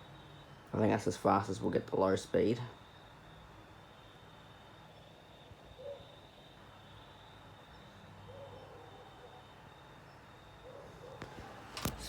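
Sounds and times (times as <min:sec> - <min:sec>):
thin steady whine: 0:00.0 - 0:12.0
electric fans humming: 0:10.9 - 0:12.0.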